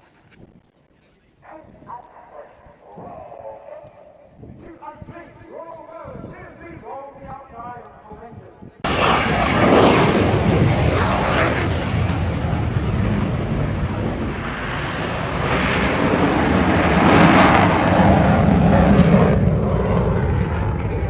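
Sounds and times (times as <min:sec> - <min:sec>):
fighter jet engine roar: 0:08.8 - 0:21.0.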